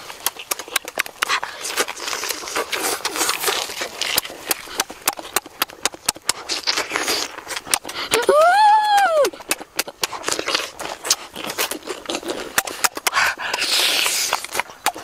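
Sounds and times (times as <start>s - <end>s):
sharp mouth clicks: 0.0s - 8.3s, 8.9s - 15.0s
wet chewing and lip-smacking: 0.0s - 15.0s
breathy hissing through lips: 6.3s - 8.2s, 11.0s - 14.8s.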